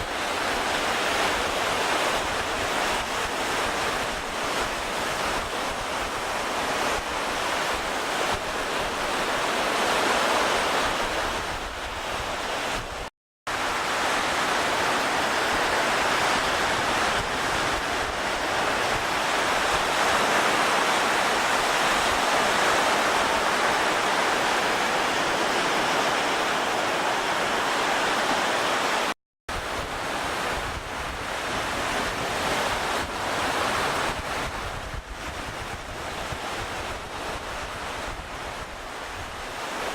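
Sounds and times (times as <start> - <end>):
waves: 0.0 - 39.9
wind buffeting microphone: 29.5 - 39.6.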